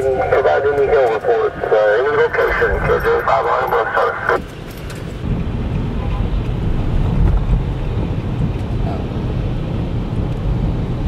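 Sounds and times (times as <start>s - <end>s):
vehicle cabin rumble: 0.0s - 11.0s.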